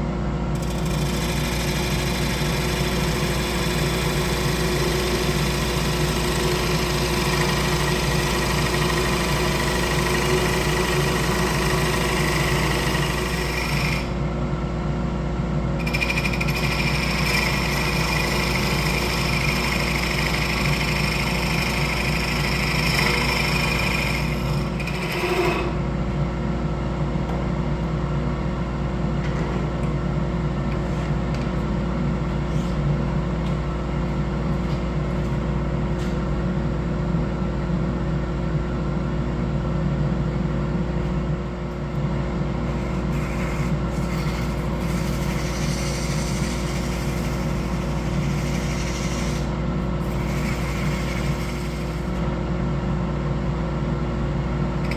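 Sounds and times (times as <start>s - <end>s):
wood lathe motor hum: 0.5s - 14.3s, 15.7s - 25.9s, 42.6s - 52.4s.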